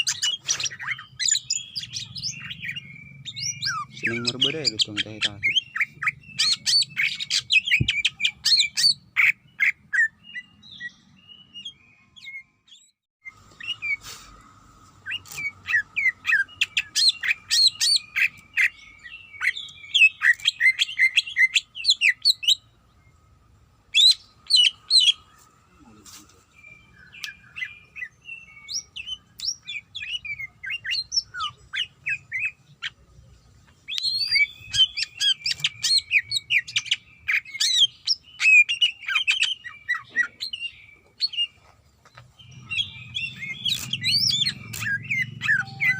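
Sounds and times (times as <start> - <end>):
bird chirping and whistling: 0.0 - 12.9, 15.0 - 22.6, 33.9 - 41.4, 42.4 - 45.9.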